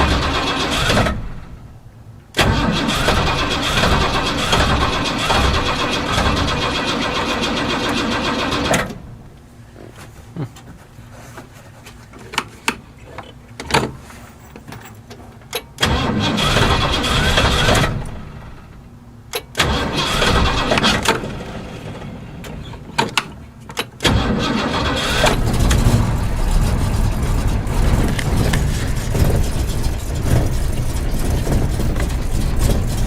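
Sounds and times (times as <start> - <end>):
engine cold-starting: 0.0 - 1.6, 2.4 - 9.2, 15.8 - 18.8, 19.5 - 23.3, 24.0 - 33.0.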